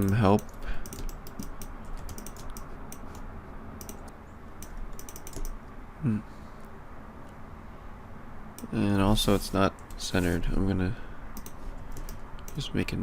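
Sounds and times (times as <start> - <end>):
keyboard keys clicking: 0.0 - 3.2, 3.8 - 5.6, 11.4 - 12.6.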